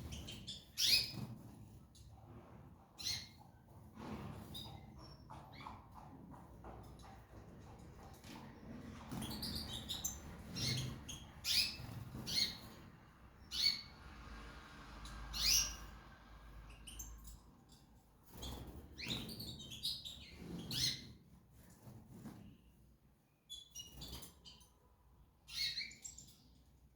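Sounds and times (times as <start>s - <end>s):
small birds chirping: 0.0s - 1.6s, 3.0s - 3.6s, 8.3s - 14.0s, 15.0s - 16.0s, 16.7s - 21.2s, 23.4s - 24.7s, 25.4s - 26.7s.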